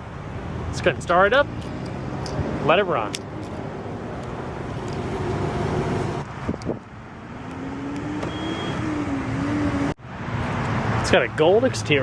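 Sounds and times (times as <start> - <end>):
faint rising tone: 7.6 - 10.0.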